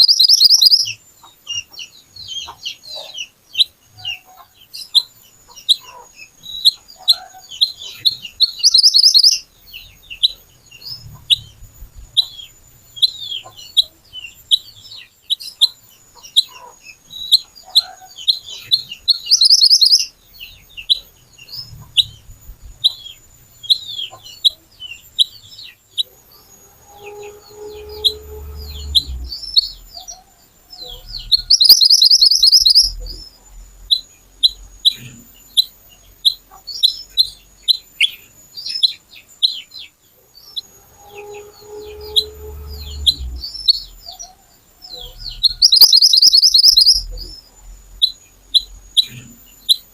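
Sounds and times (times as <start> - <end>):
bird chirping and trilling: 0.0 - 49.9
low drawn-out bird call: 16.4 - 38.2, 39.5 - 49.9.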